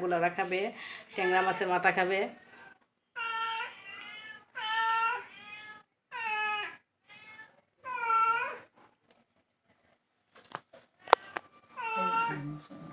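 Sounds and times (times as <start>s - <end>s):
cat meowing: 3.2s - 8.7s, 11.0s - 12.6s.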